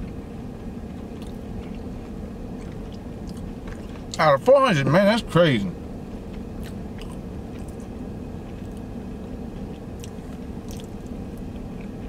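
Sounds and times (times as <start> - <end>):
vehicle cabin hum: 0.0 - 12.0
person chewing: 0.9 - 4.2, 6.6 - 8.9, 9.5 - 12.0.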